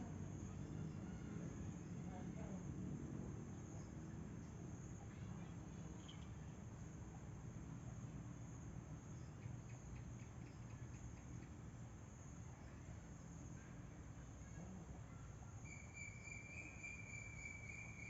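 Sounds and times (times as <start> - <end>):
insects trilling: 15.6 - 18.0.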